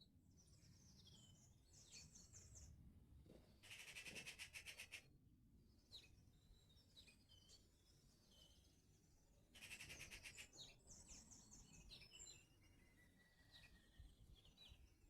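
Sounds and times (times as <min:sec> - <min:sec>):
songbirds singing: 0:00.2 - 0:02.8, 0:05.7 - 0:15.0.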